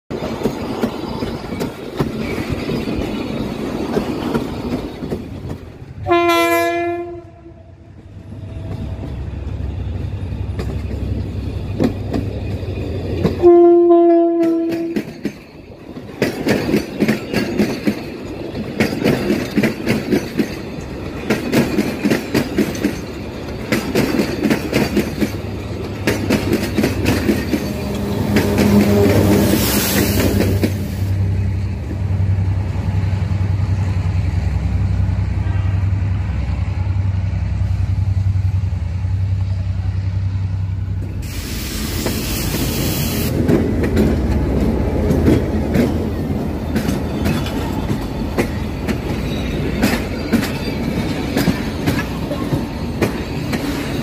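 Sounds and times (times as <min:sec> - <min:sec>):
wheels clattering over rail joints: 0:00.1 - 0:06.0, 0:08.6 - 0:13.5, 0:14.3 - 0:31.1, 0:43.3 - 0:54.0
train rumble: 0:00.1 - 0:54.0
train horn blasts: 0:06.0 - 0:09.0, 0:13.4 - 0:15.1, 0:27.5 - 0:31.2, 0:35.4 - 0:36.1.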